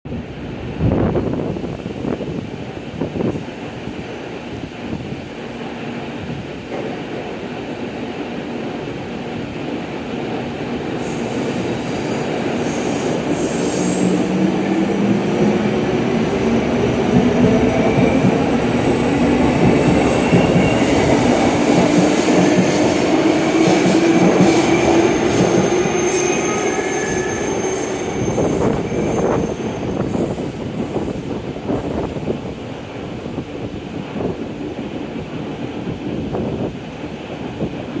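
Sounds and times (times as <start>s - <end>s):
wheels whistling: 11.0s - 30.6s.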